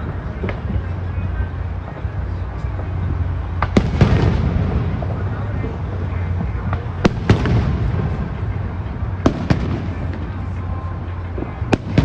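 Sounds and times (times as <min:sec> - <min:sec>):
low rumble of bursts and crackle: 0:00.0 - 0:12.0.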